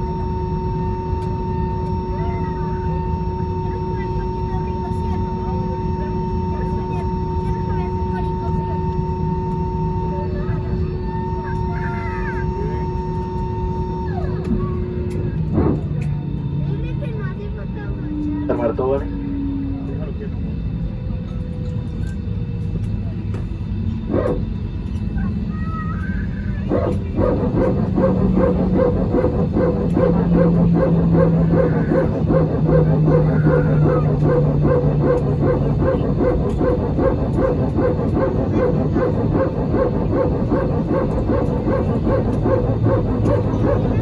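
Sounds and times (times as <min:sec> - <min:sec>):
low engine tone falling in pitch: 0:00.0 - 0:44.0
cabin rumble: 0:09.1 - 0:44.0
hydraulic pump barking pulse: 0:26.6 - 0:44.0.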